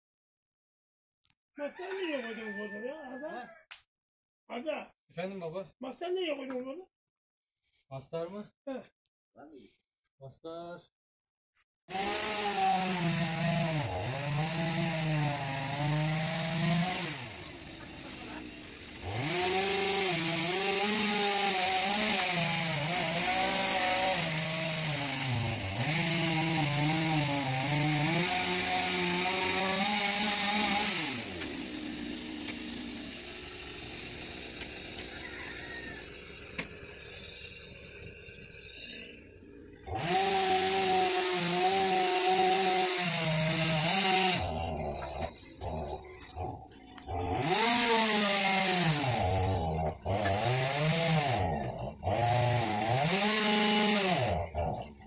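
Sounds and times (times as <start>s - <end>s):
electric power tool cutting: 11.9s - 55.0s.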